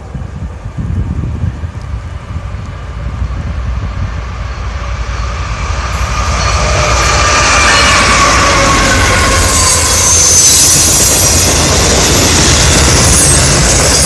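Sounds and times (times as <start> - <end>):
diesel locomotive engine: 0.0 - 14.0
wheels hissing on rails: 0.0 - 14.0.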